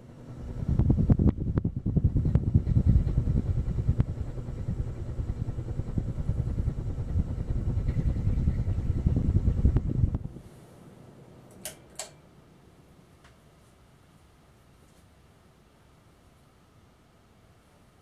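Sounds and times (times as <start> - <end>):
fan air buffeting microphone: 0.0 - 15.4
clicks: 11.5 - 12.2.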